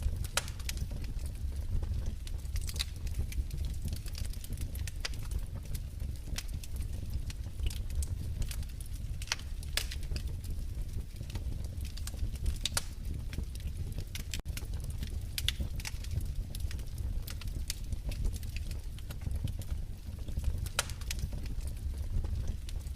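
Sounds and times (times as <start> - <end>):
low rumble of flames: 0.0 - 22.9
wood fire crackling: 0.0 - 22.9
sharp pops and snaps: 0.2 - 0.8, 7.6 - 10.3, 11.3 - 19.6, 20.2 - 21.6.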